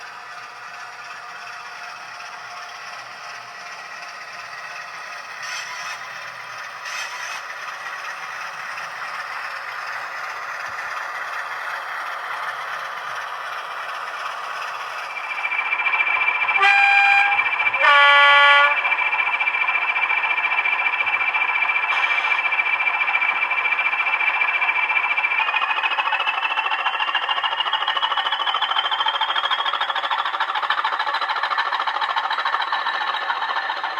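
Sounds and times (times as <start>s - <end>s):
model locomotive engine whine: 0.0s - 33.9s
locomotive horn blasts: 16.6s - 19.1s.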